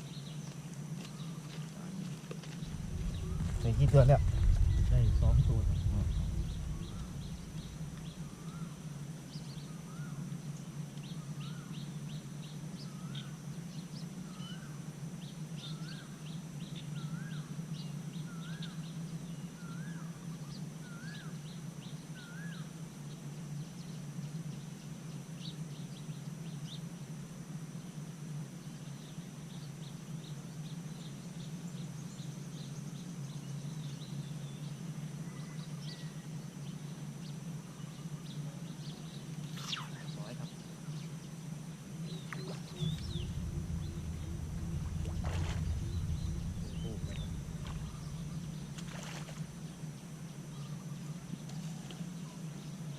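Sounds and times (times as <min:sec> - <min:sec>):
low steady hum: 0:01.8 - 0:10.8, 0:37.9 - 0:51.4
steady high-pitched tone: 0:02.6 - 0:08.6, 0:42.4 - 0:49.8
birds chirping: 0:02.6 - 0:08.7, 0:42.1 - 0:49.8.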